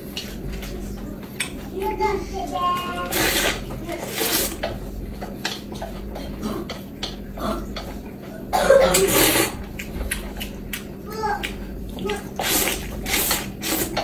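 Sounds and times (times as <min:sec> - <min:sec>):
person coughing: 0:08.5 - 0:09.6.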